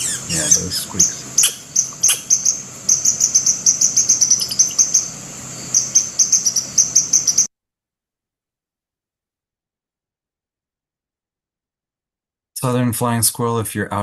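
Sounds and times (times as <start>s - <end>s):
squirrel alarm squeaks: 0.0s - 5.1s, 5.7s - 7.5s.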